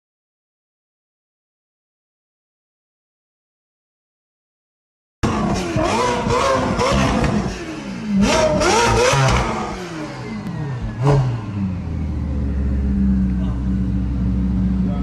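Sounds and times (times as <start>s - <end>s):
car engine revving: 5.2s - 15.0s.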